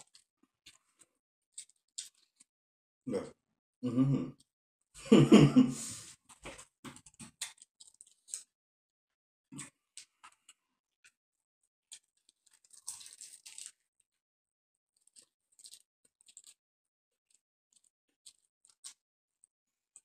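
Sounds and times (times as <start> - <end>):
crunching and chewing: 0.0 - 2.5, 6.0 - 8.6, 9.6 - 11.2, 11.9 - 14.1, 15.0 - 16.6, 17.2 - 20.0.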